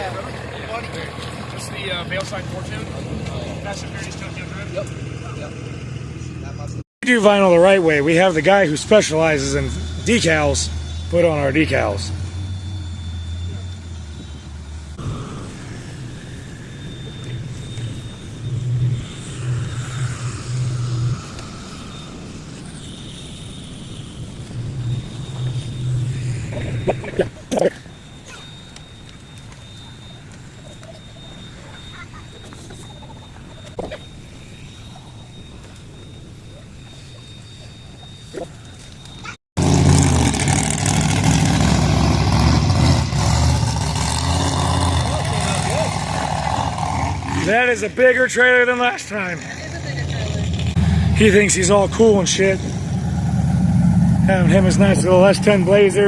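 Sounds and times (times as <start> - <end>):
vehicle engine running loudly: 0.0 - 34.1, 39.0 - 56.0
faint outdoor background noise: 0.0 - 39.4
car engine running: 39.6 - 56.0.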